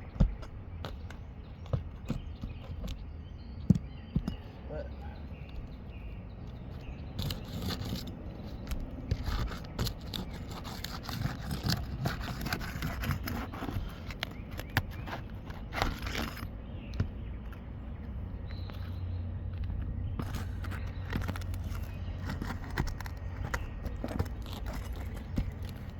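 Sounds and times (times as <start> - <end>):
roof shingles scraping and crackling: 5.3 - 17.0, 19.6 - 25.9.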